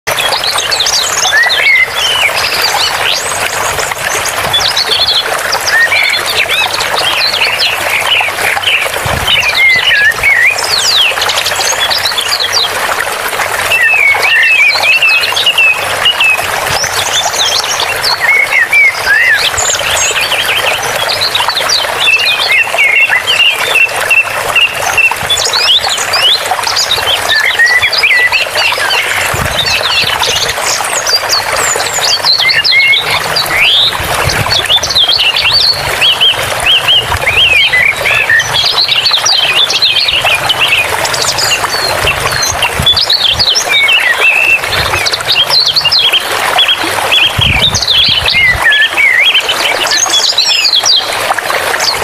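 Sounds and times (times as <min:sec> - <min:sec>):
running water: 0:00.1 - 0:52.0
small birds chirping: 0:13.8 - 0:51.0.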